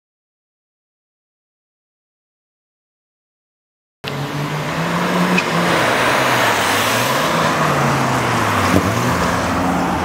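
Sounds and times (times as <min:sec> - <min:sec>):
tyre and road noise: 0:04.0 - 0:10.0
car engine driving past: 0:04.1 - 0:10.0.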